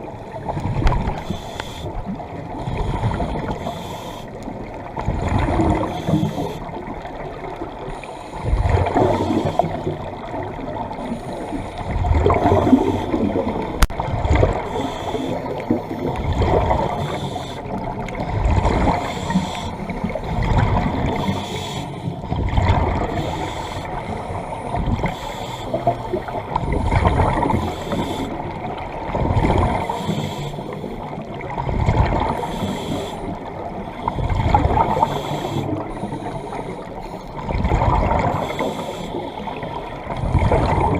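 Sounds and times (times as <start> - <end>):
diver exhaling bubbles underwater: 5.0 - 6.5, 8.4 - 11.2, 11.8 - 17.2, 20.0 - 21.4, 22.3 - 23.5, 25.8 - 30.0, 34.1 - 35.9, 37.4 - 38.8, 40.1 - 40.9.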